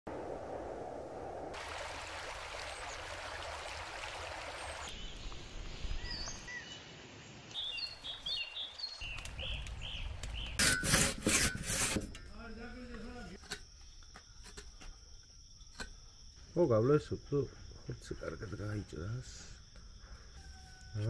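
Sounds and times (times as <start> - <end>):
small birds chirping: 4.4 - 10.6.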